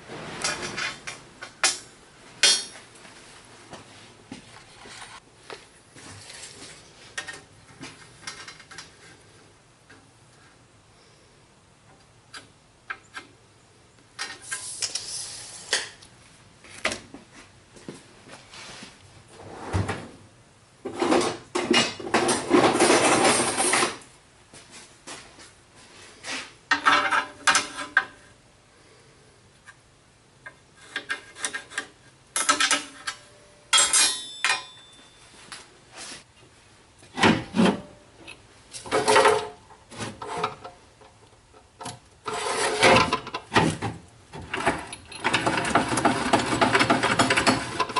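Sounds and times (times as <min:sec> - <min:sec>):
objects scraping and rubbing: 0:00.0 - 0:01.2, 0:03.2 - 0:05.3, 0:14.2 - 0:16.0, 0:18.3 - 0:20.2, 0:38.8 - 0:40.8, 0:42.2 - 0:43.3
objects knocking and clattering: 0:20.8 - 0:24.0, 0:26.7 - 0:28.1, 0:38.8 - 0:41.9, 0:42.7 - 0:47.9.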